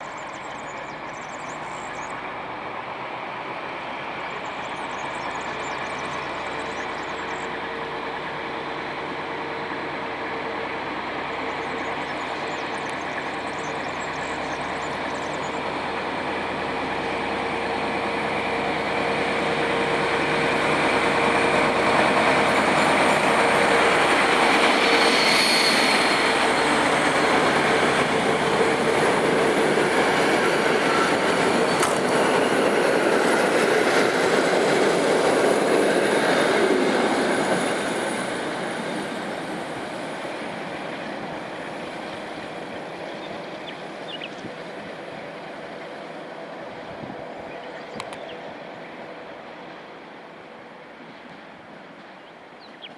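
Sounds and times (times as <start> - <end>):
diesel locomotive engine: 0.0 - 52.9
train wheels rolling: 1.5 - 52.9
brief high squeal: 24.8 - 26.4.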